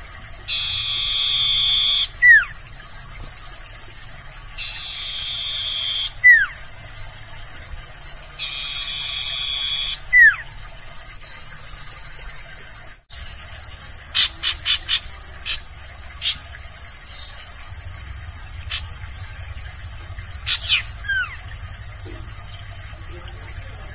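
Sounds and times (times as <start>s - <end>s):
barn owl screeching: 0.5s - 2.5s, 4.6s - 6.6s, 8.4s - 10.4s.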